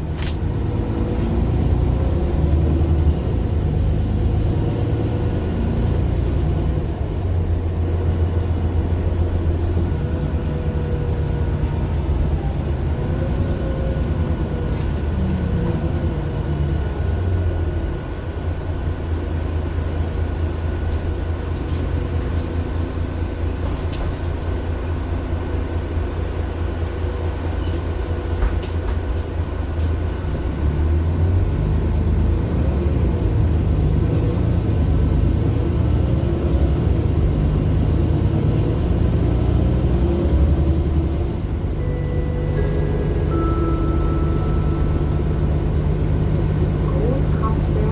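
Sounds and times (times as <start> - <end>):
bus diesel engine running: 0.0 - 47.9.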